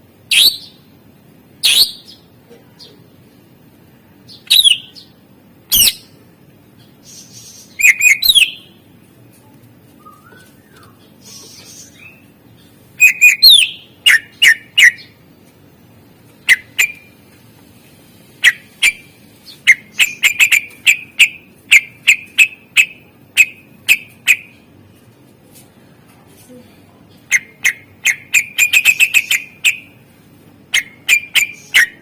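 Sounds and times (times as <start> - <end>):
bird calling sharp notes: 13.0 - 15.2, 16.4 - 17.2, 18.4 - 24.6, 27.3 - 30.0, 30.7 - 32.0.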